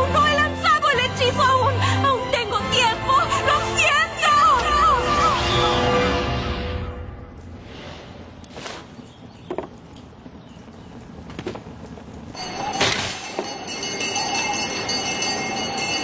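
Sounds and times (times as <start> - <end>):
music with high ringing tones: 12.3 - 16.0.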